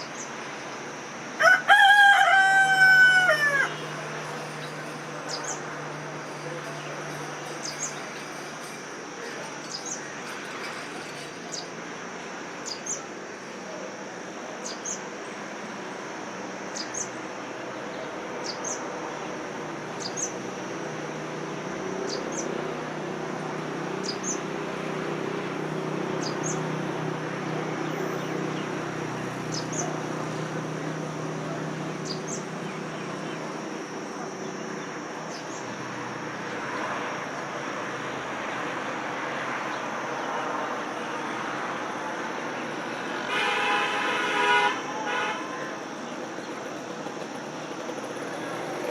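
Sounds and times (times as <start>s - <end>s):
high insect drone: 0.0s - 48.9s.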